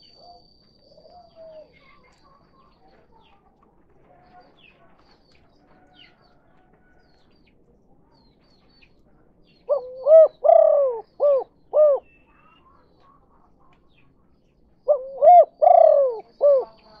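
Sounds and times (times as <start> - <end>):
dove cooing: 0.0 - 1.9, 9.7 - 12.4, 14.8 - 17.0
small birds chirping: 0.0 - 17.0.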